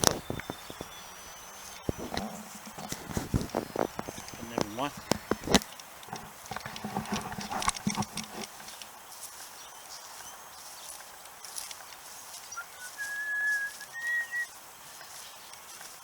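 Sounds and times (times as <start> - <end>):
footsteps on rough ground: 0.0 - 16.0
short high whistle: 12.6 - 14.5.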